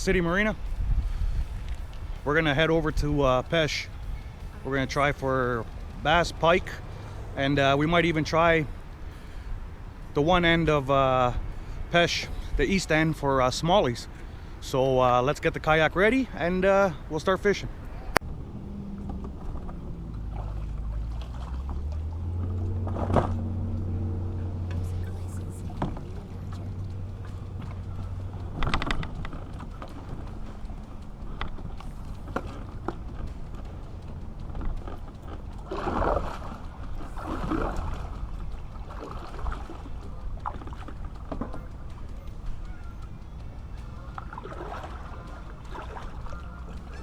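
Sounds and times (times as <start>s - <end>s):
low motor hum: 0.0s - 12.9s, 17.6s - 47.0s
rushing swells: 0.0s - 15.9s, 17.0s - 47.0s
light water sounds: 0.0s - 47.0s
steady low rumble: 0.0s - 47.0s
kayak gear knocks and clicks: 25.8s - 43.0s.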